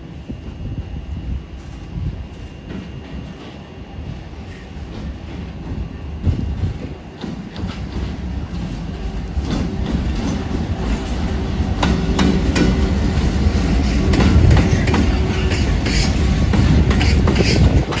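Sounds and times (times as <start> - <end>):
train rumbling on tracks: 0.0 - 18.0
wheels clicking over rail joints: 6.2 - 18.0.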